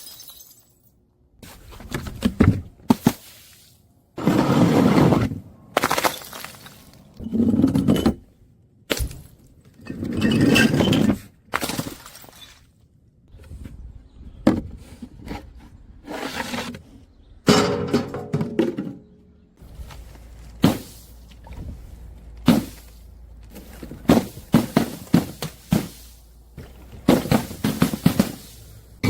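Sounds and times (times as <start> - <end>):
glass crushing and shattering: 0.0 - 0.9, 5.8 - 7.2, 11.5 - 12.7.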